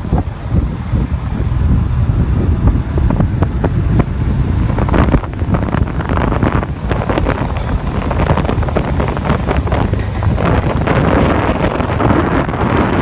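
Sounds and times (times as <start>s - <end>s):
low rumble: 0.0s - 13.0s
wind buffeting microphone: 0.0s - 13.0s
sharp clicks and knocks: 9.6s - 12.2s.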